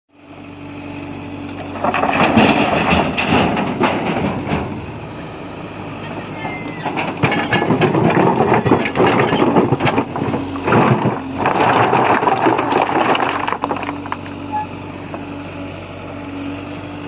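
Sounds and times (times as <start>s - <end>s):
diesel engine running: 0.1s - 17.0s
high squeal: 6.2s - 7.0s.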